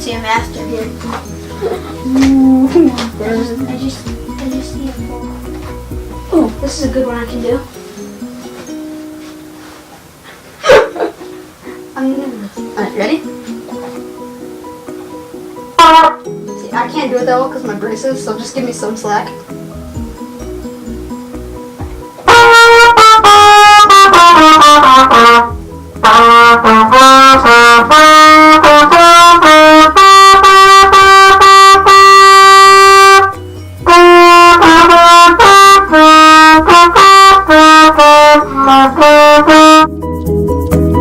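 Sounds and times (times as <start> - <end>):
solo trumpet playing: 15.7 - 16.3, 22.2 - 40.0.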